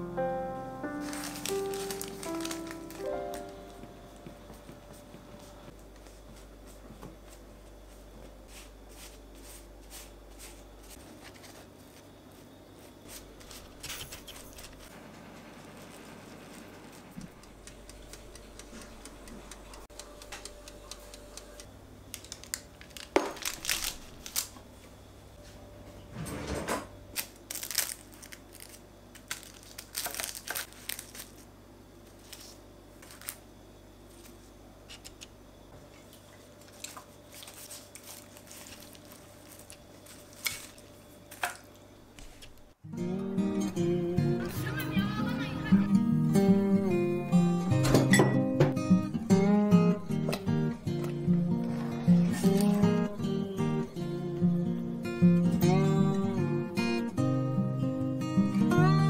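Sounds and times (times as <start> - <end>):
crinkling or scraping: 0.9 - 3.6, 8.5 - 14.9, 22.1 - 25.0, 26.1 - 33.4, 35.9 - 42.7, 51.0 - 53.1.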